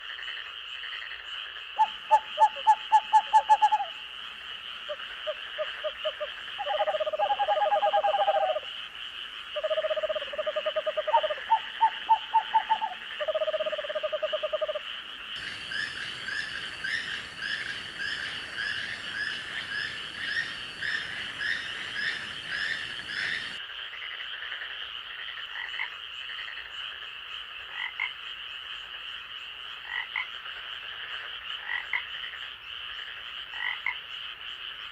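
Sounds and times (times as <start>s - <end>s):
frogs croaking: 0.0s - 34.9s
insect trill: 1.6s - 23.6s
soft hiss: 15.2s - 23.6s.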